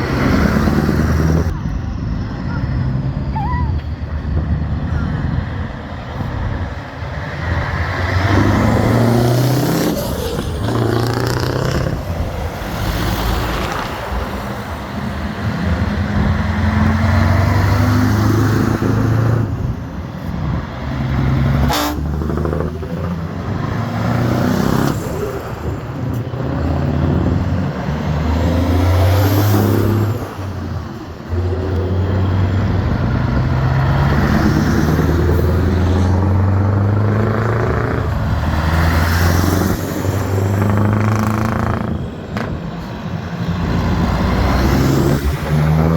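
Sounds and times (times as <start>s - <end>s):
trucks driving past: 0.0s - 45.9s.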